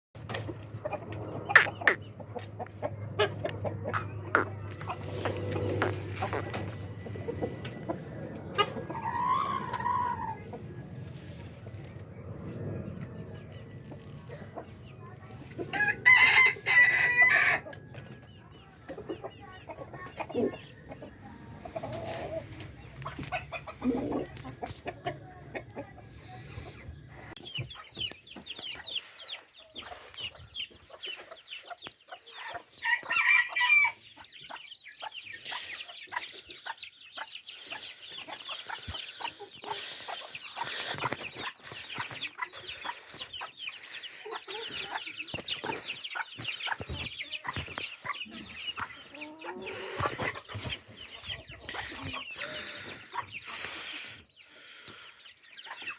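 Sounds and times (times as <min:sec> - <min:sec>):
chickens clucking and calling: 0:00.2 - 0:55.9
rooster crowing: 0:15.7 - 0:17.7.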